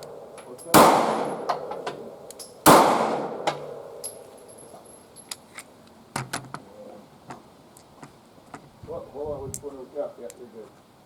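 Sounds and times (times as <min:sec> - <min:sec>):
pistol shot: 0:00.1 - 0:04.0.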